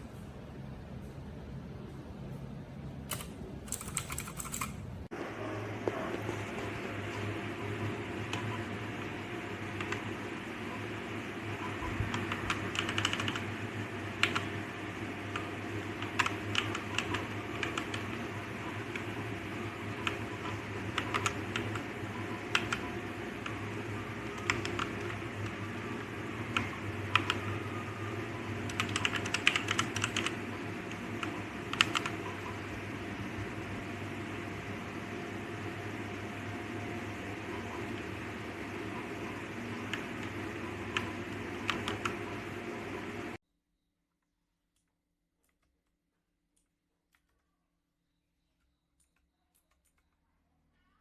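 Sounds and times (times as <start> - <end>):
steady low hum: 0.0 - 43.4
mechanical keyboard key clicks: 3.1 - 4.8
mechanical keyboard typing: 3.1 - 4.8, 12.0 - 14.6, 15.3 - 19.2, 19.9 - 25.7, 26.4 - 27.6, 28.6 - 32.4, 39.7 - 42.4.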